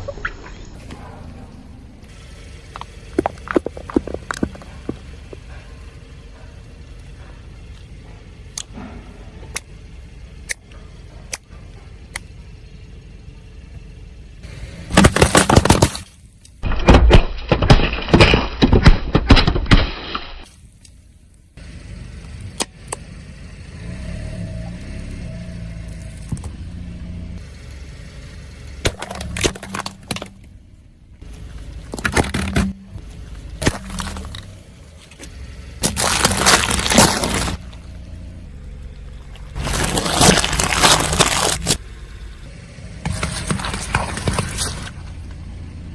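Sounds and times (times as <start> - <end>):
car engine rumbling: 0.0 - 19.6, 20.5 - 45.9
tyres crushing objects: 0.8 - 6.5, 14.8 - 20.7, 28.8 - 30.6, 31.2 - 37.9, 39.4 - 41.8, 42.7 - 45.9.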